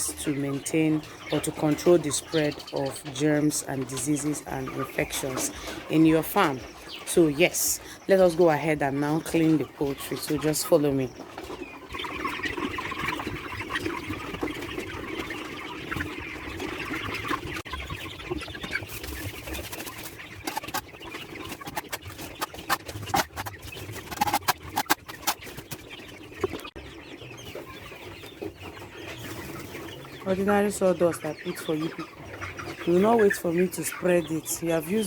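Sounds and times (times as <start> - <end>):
chickens clucking: 0.0 - 35.0
sharp clicks and knocks: 20.5 - 20.8, 21.6 - 25.4.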